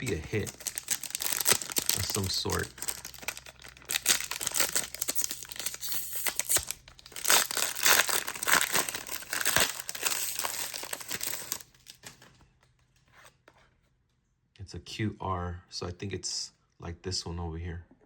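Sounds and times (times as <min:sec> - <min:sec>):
foil wrapper tearing and crinkling: 0:00.0 - 0:12.3.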